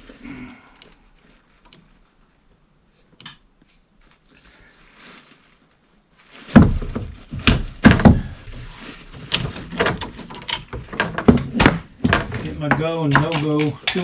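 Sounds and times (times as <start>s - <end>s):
tools and pipe knocking: 6.6s - 8.4s, 9.3s - 14.0s.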